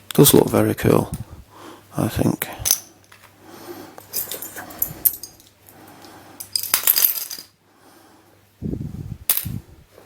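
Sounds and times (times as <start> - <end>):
puzzle pieces clicking and clattering: 6.4 - 7.6.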